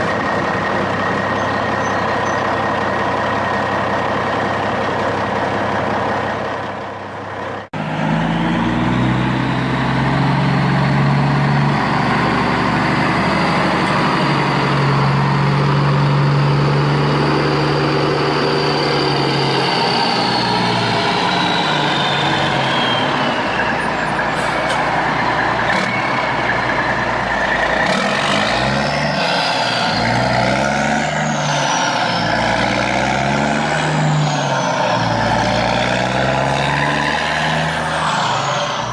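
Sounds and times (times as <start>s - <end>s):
heavy truck engine revving: 0.0s - 38.9s.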